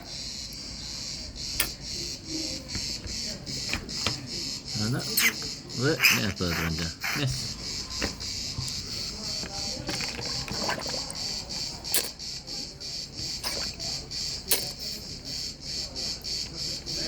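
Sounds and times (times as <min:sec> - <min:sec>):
high-pitched pulsing chirping: 0:00.0 - 0:09.3.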